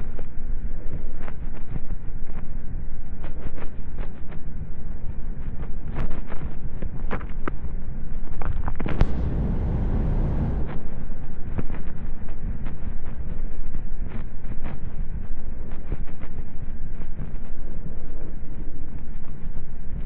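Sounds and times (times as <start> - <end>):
road and drivetrain rumble: 8.9 - 10.8.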